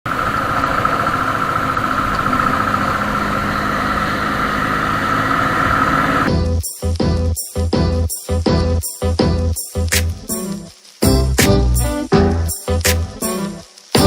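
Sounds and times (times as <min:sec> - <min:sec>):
motorcycle engine running: 0:00.1 - 0:06.4
high whine: 0:00.1 - 0:07.0
music with a beat: 0:06.3 - 0:14.0.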